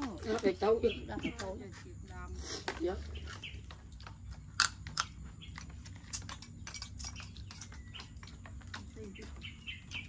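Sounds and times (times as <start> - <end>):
person chewing crunchy food: 3.2 - 10.0.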